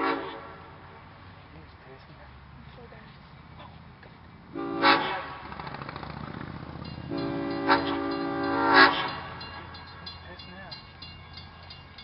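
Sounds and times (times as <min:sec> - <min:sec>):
locomotive horn blasts: 0:00.0 - 0:00.7, 0:04.5 - 0:05.5, 0:07.0 - 0:10.2
train rumble: 0:00.0 - 0:12.0.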